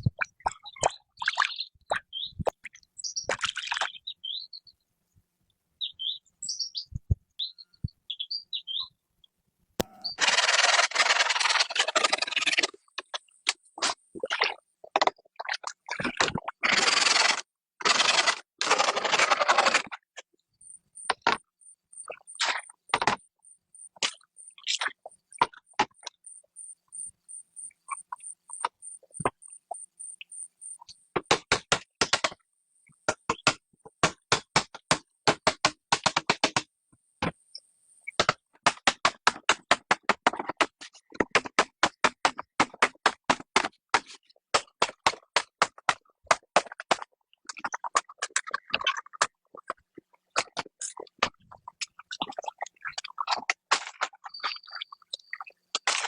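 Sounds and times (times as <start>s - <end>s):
faint pulsing high chirp: 5.8s - 9.0s, 9.9s - 10.2s, 20.6s - 22.4s, 23.4s - 24.7s, 26.2s - 31.0s.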